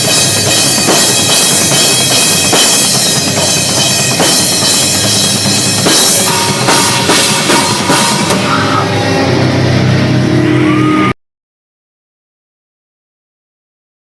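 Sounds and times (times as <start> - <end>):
drums and cymbals: 0.0 - 11.1
metalcore band playing live: 0.0 - 11.1
distorted guitars: 0.0 - 11.2.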